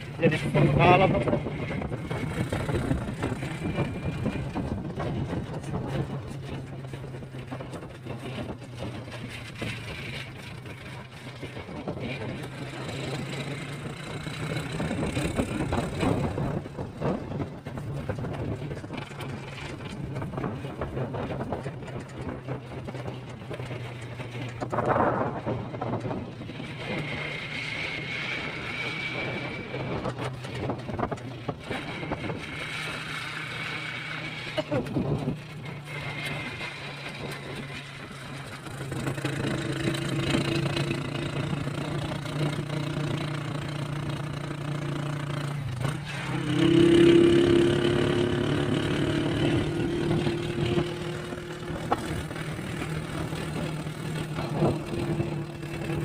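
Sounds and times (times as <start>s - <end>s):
road noise: 0.0s - 56.0s
vehicle engine humming: 0.0s - 56.0s.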